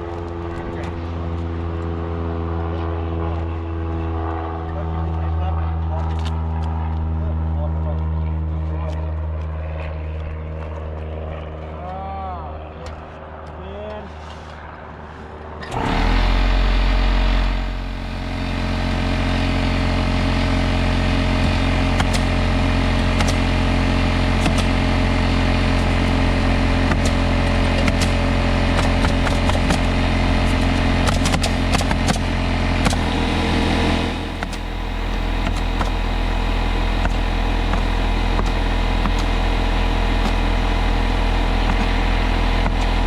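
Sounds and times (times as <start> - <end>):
motor humming steadily: 0.0 - 14.8, 15.6 - 43.0
sharp clicks and rattles: 21.3 - 23.6, 25.6 - 33.2, 33.8 - 43.0.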